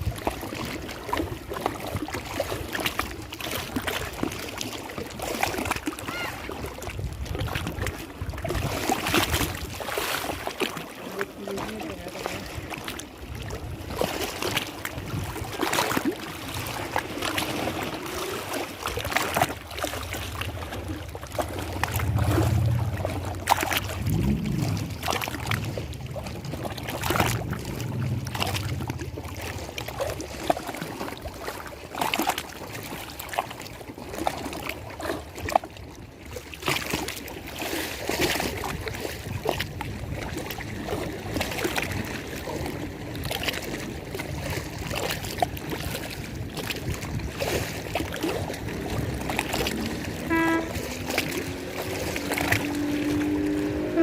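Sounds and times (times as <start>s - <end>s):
water lapping and splashing: 0.0s - 54.0s
low hum: 20.4s - 30.0s.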